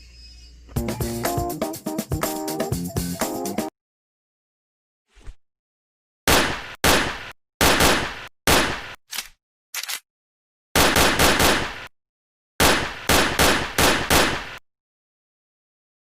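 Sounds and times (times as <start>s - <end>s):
loud gunshots: 6.3s - 9.0s, 10.8s - 11.9s, 12.6s - 14.6s.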